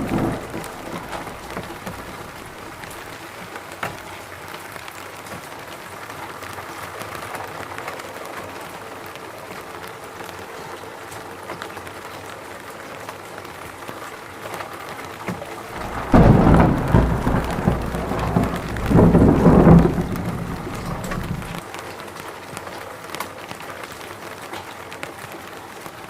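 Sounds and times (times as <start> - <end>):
thunderclap and deep rumble: 0.0 - 3.3, 15.8 - 21.6
steady rain falling: 0.0 - 26.0.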